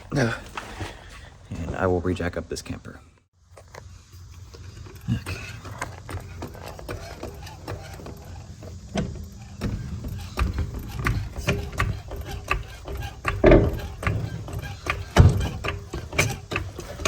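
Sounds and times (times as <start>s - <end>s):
jack clicking and clanking: 3.6s - 17.0s.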